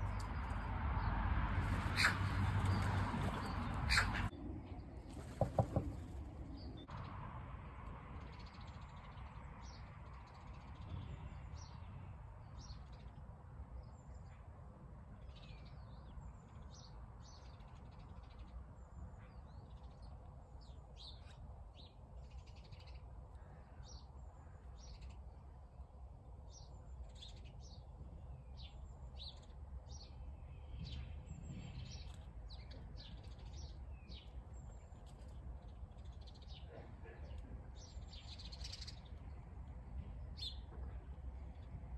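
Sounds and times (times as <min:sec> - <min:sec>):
small birds chirping: 0:01.6 - 0:07.0, 0:26.5 - 0:39.6.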